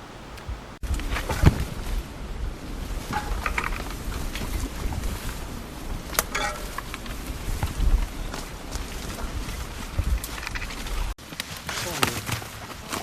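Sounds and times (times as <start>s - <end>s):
wind rumbling on microphone: 0.0s - 11.2s
clicks and rustles: 2.9s - 13.0s.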